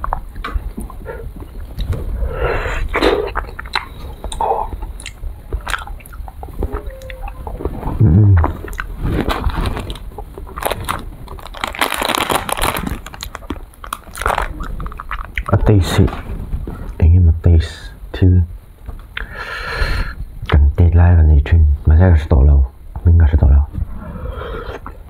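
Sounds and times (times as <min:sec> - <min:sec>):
wet mouth sounds: 0:02.6 - 0:09.0
ice cream bar crunching: 0:02.9 - 0:16.0.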